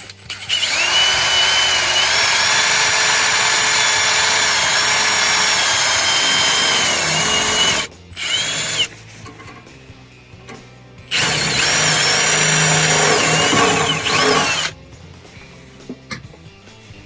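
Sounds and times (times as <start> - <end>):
power drill drilling: 0.1 - 9.6, 11.1 - 14.8.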